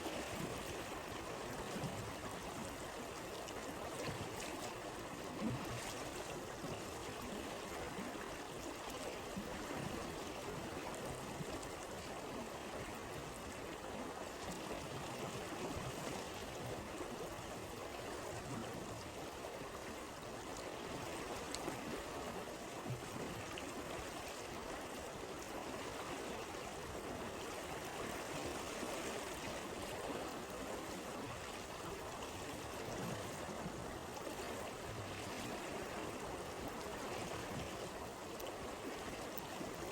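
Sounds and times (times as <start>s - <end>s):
stream flowing over stones: 0.0s - 39.9s
faint campfire crackles: 36.1s - 39.9s.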